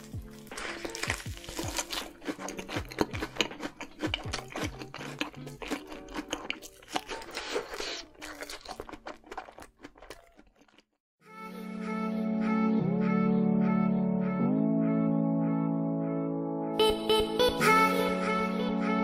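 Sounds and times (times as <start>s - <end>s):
soft background music: 0.0s - 7.9s
wet mouth sounds: 0.0s - 10.9s
crunching and chewing food: 0.0s - 11.0s.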